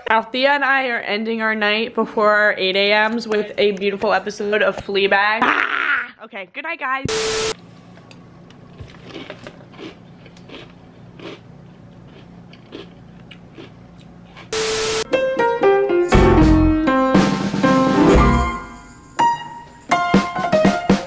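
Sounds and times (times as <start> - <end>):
piano music: 14.6 - 21.0.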